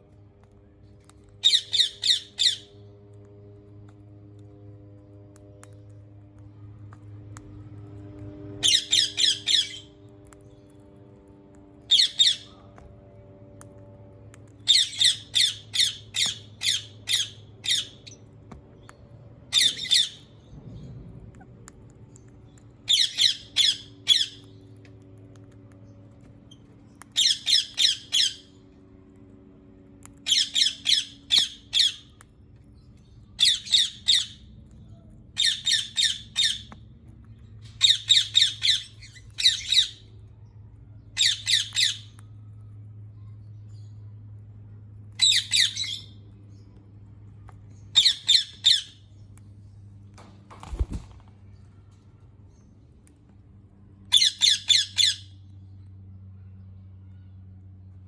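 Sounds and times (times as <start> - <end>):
parakeet screeching: 1.4 - 2.8, 8.6 - 9.9, 14.7 - 18.1, 19.5 - 20.3, 30.2 - 32.1, 54.1 - 55.4.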